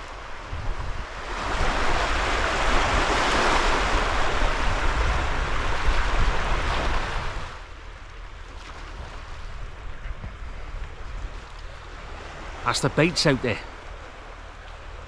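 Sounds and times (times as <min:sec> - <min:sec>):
wind buffeting on microphone: 0:00.0 - 0:07.6, 0:08.9 - 0:12.2
waves on the shore: 0:00.0 - 0:15.0
wind: 0:00.0 - 0:15.0.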